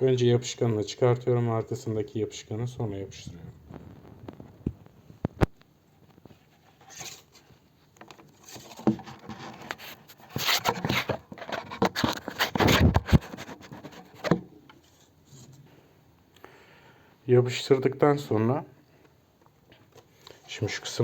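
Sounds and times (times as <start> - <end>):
scratchy rustling and scraping: 6.0 - 15.6.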